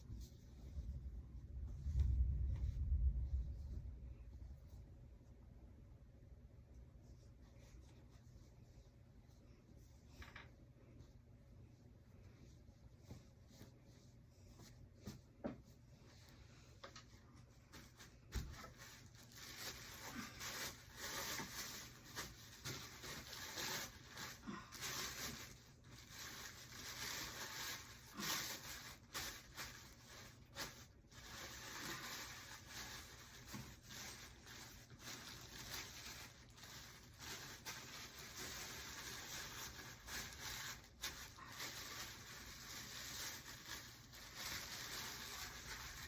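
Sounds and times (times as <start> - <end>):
tissue paper rustling and crinkling: 11.0 - 46.0.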